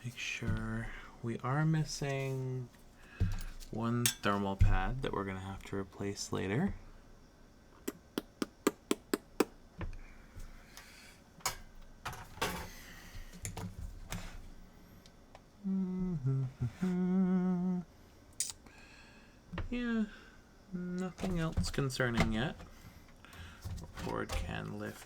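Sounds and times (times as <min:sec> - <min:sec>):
rustles from handling parts: 0:01.8 - 0:05.1, 0:21.0 - 0:25.0
man humming: 0:15.6 - 0:17.9.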